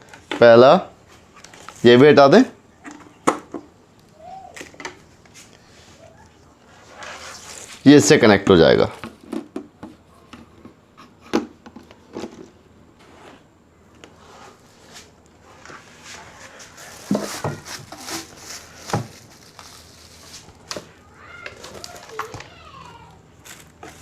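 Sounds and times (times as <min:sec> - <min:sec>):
rustling: 0:04.0 - 0:08.1, 0:12.1 - 0:24.0.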